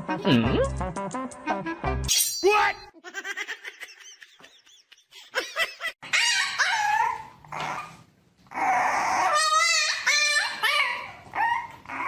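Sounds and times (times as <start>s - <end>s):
dog high-pitched cries: 6.0s - 12.0s.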